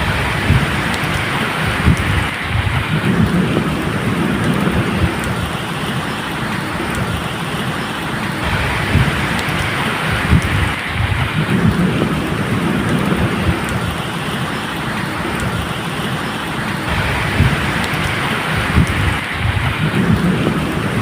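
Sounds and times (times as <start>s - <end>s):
low thunder rumbling: 0.0s - 21.0s
steady rain falling: 0.0s - 21.0s.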